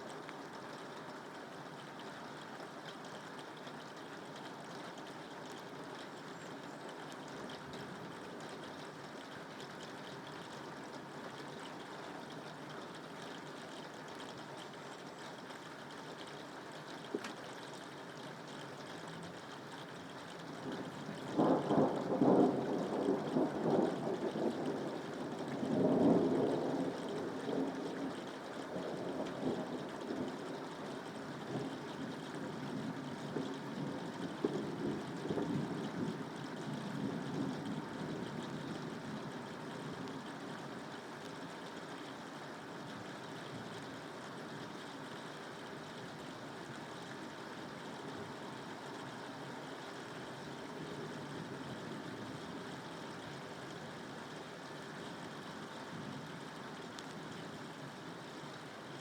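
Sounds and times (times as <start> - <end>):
steady rain: 0.0 - 59.0
rolling thunder rumble: 20.7 - 30.9.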